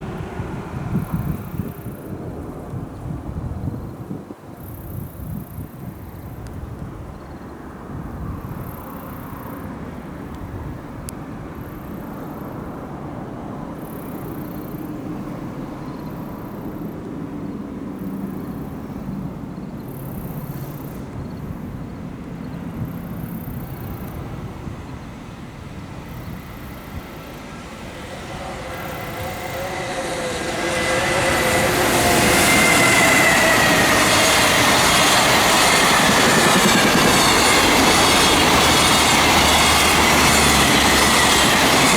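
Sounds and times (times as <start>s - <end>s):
rail noise: 0.0s - 41.9s
train low rumble: 0.0s - 41.9s
locomotive traction motor whine: 23.8s - 41.9s.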